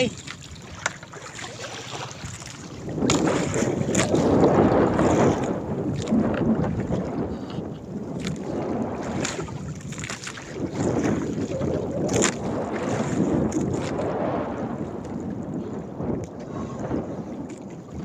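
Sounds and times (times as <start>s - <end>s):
sharp splashes: 0.0s - 6.2s
water slapping hull: 0.0s - 18.0s
wind buffeting microphone: 0.0s - 18.0s.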